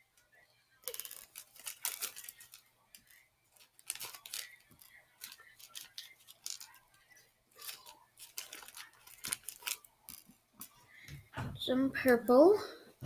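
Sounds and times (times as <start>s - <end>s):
beads clicking: 0.8s - 10.8s.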